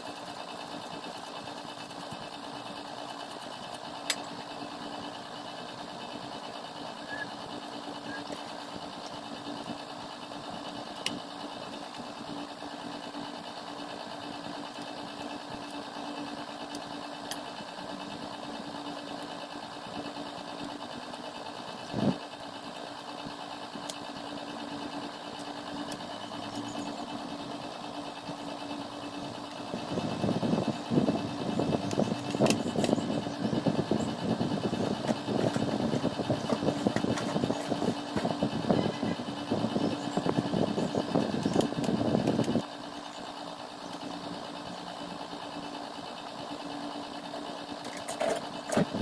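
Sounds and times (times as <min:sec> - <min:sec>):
machine hum: 0:00.0 - 0:49.0
handling noises: 0:31.6 - 0:42.6.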